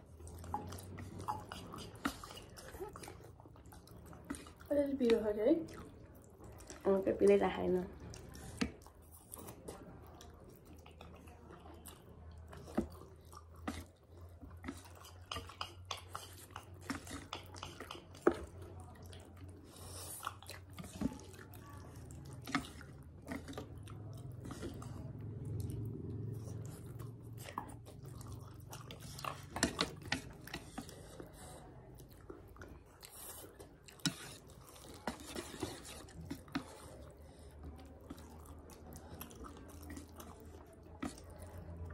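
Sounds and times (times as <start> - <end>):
chewing noodles: 0.0 - 41.9.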